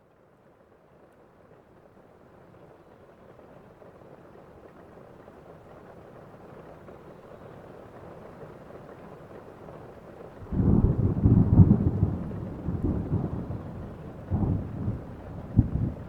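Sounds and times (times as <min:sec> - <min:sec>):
heavy rain: 0:10.4 - 0:16.0
rolling thunder rumble: 0:10.4 - 0:16.0.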